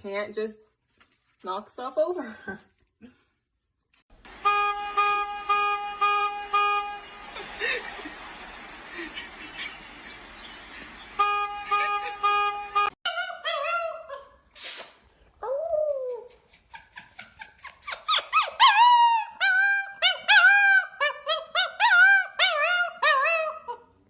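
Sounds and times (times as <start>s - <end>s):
steady horn-like tone: 4.2s - 7.4s, 11.2s - 13.0s
dog whining and yelping: 13.1s - 14.4s, 15.4s - 24.0s.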